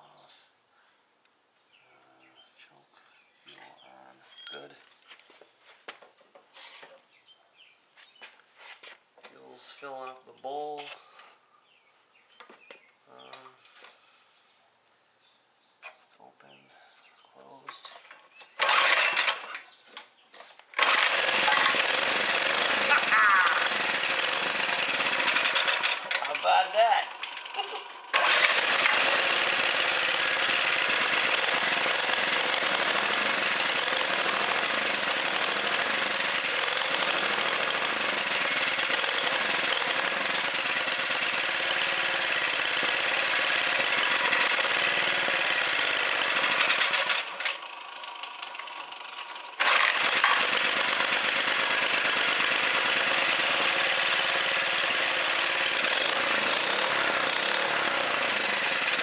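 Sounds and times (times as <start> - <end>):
small engine running rapidly: 18.4 - 19.8, 20.8 - 59.0.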